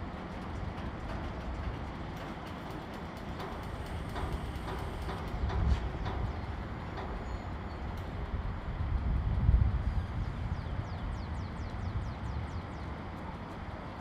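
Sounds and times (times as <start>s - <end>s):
train rumbling past: 0.0s - 14.0s
sharp clicks and knocks: 0.2s - 7.3s.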